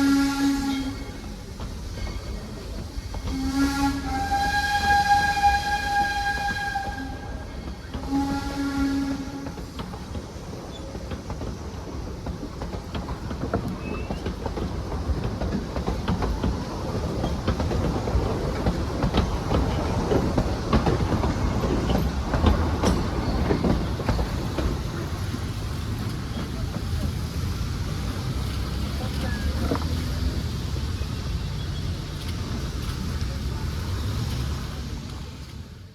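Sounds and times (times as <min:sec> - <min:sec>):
steam locomotive whistle: 0:00.0 - 0:01.4, 0:03.3 - 0:09.8
train rumbling: 0:00.0 - 0:35.9.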